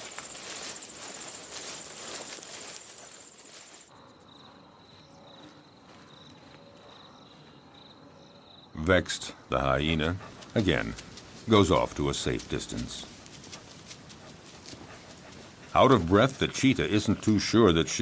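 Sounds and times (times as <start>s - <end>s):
rustling background: 0.0s - 3.9s, 9.6s - 17.4s
insects trilling: 0.0s - 8.8s
lower pulsed insect chirp: 0.0s - 8.8s.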